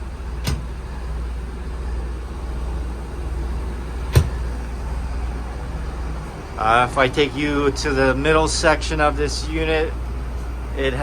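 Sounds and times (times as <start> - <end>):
diesel engine idling: 0.0 - 11.0
cabinet latch clicks: 0.4 - 0.8, 4.1 - 4.4.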